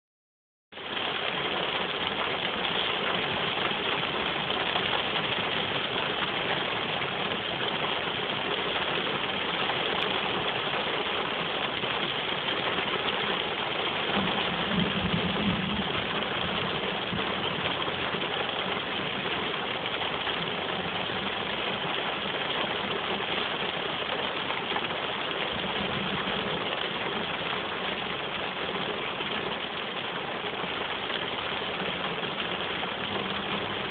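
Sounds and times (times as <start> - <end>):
rain on a car: 0.7 - 33.9.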